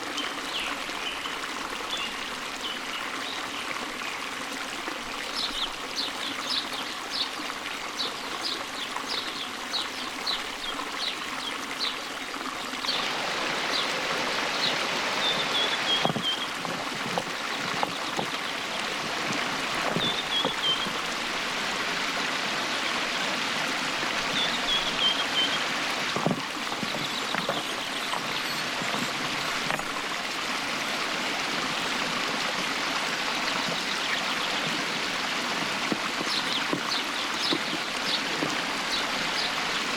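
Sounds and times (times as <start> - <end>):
stream running over rocks: 0.0 - 39.9
bird singing: 19.9 - 21.0, 24.3 - 25.6.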